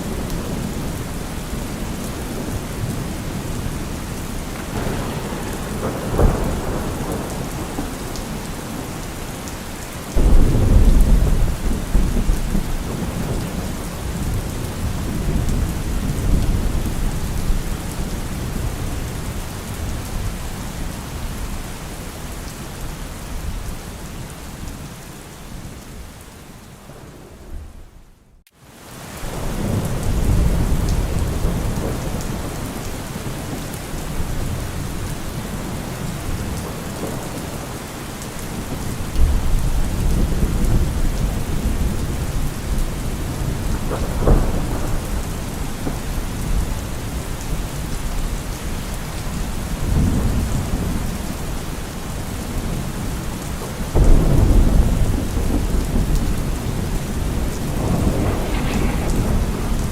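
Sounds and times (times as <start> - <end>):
thunder rumbling: 0.0 - 21.5, 29.3 - 59.9
steady rain falling: 0.0 - 59.9
sharp thunder crack: 4.5 - 9.0, 10.2 - 17.2, 43.2 - 46.7, 54.0 - 59.9.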